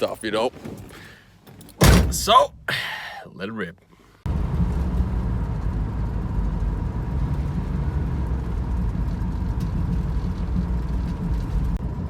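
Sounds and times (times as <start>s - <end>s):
car engine droning: 4.3s - 12.0s
road noise: 4.3s - 12.0s.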